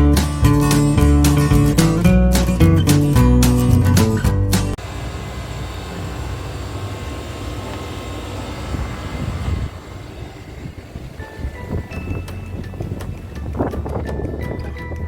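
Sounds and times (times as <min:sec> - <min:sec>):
strong wind gusting on microphone: 0:08.6 - 0:15.0.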